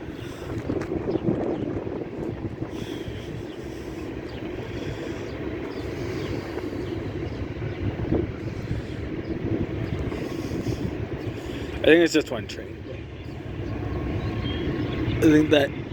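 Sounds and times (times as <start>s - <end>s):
freight train rumbling past: 0.0s - 15.9s.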